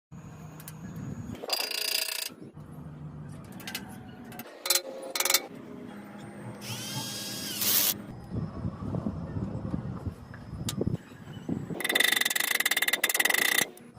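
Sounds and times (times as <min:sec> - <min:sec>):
electric power tool motor: 0:06.6 - 0:08.0.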